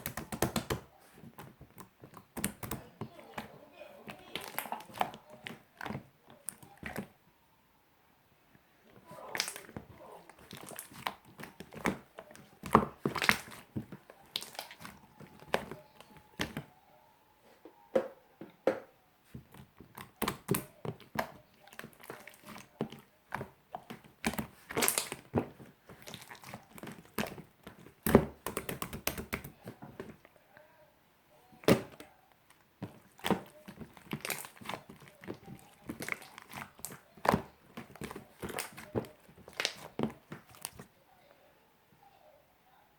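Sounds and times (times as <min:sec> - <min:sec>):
slime squeezed by hand: 0:09.0 - 0:16.6, 0:19.9 - 0:30.1, 0:32.8 - 0:40.8.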